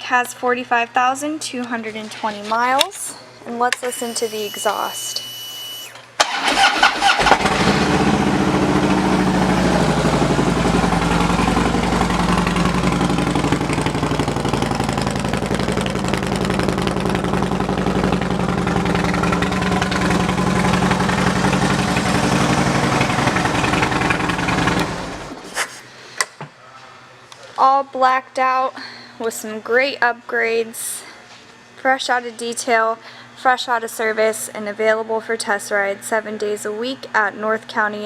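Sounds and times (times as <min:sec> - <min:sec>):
motorcycle engine starting and idling: 0:05.7 - 0:25.5.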